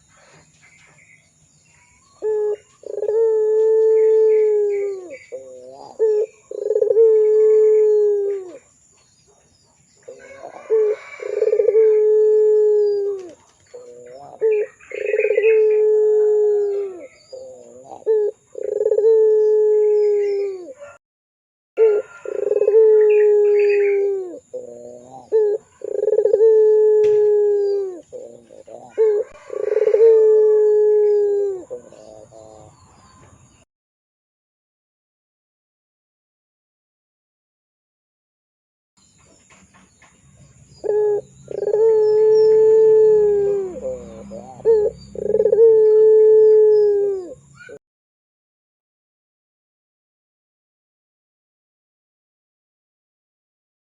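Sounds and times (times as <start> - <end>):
dove cooing: 2.1 - 8.7, 10.0 - 21.0, 21.8 - 33.3, 40.7 - 47.8.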